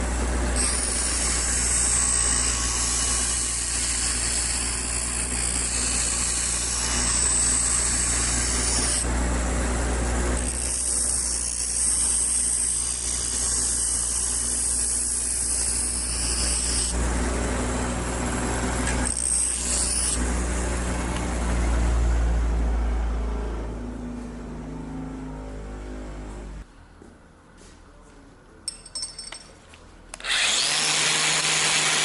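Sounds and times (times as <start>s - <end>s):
grinder grinding steel: 0.0s - 21.5s, 30.2s - 32.0s
motor hum: 0.0s - 26.7s.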